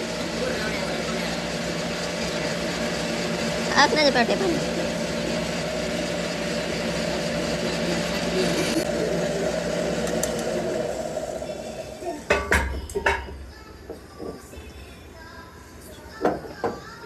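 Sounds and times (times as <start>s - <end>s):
factory machinery humming: 0.0s - 12.7s.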